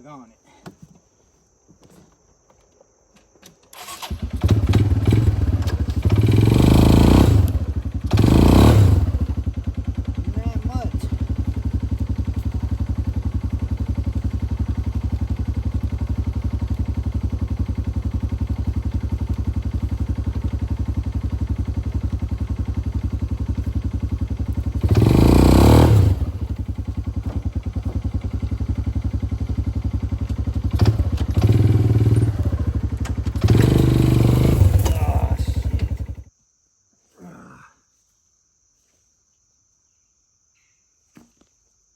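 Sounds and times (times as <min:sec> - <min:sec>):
atv engine idling and revving: 0:04.0 - 0:36.3.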